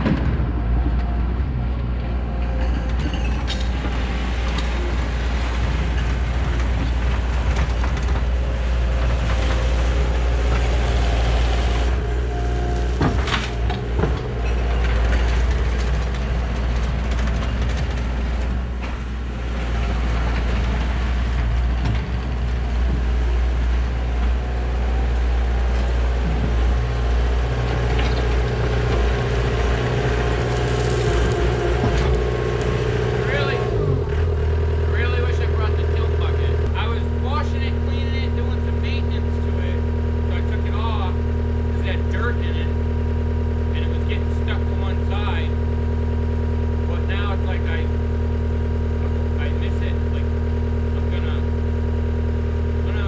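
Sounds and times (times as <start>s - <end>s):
diesel engine droning: 0.0s - 53.0s
hydraulic whine: 0.0s - 53.0s.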